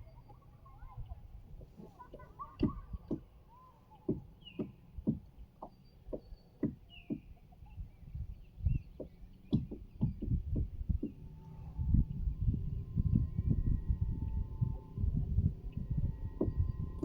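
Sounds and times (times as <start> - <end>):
birds chirping faintly: 0.0 - 17.0
dull low knocks: 4.0 - 17.0.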